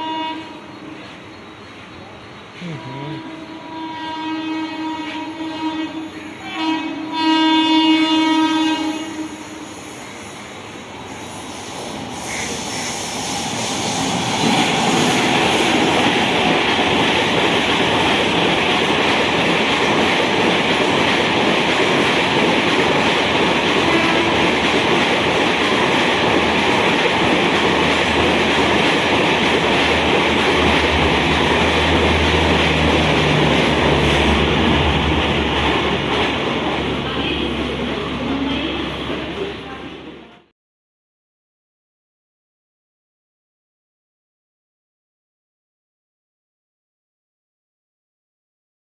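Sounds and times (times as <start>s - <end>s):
locomotive horn blast: 0.0s - 0.7s, 2.6s - 9.7s, 23.8s - 24.6s
train passing at speed: 0.0s - 40.5s.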